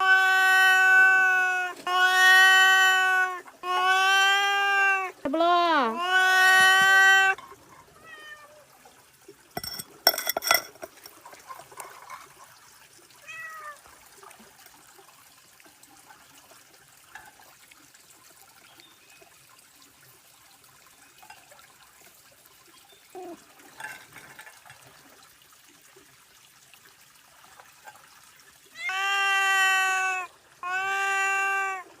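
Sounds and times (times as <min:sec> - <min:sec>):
cat meowing: 0:00.0 - 0:05.2, 0:05.8 - 0:07.4, 0:08.0 - 0:08.7, 0:13.2 - 0:13.8, 0:28.8 - 0:31.9.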